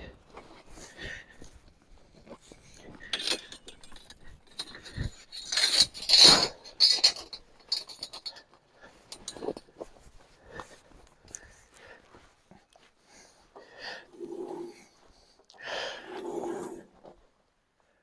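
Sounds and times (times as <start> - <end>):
rustling handling noise: 0.0 - 17.9
small metal objects clinking: 3.1 - 8.5.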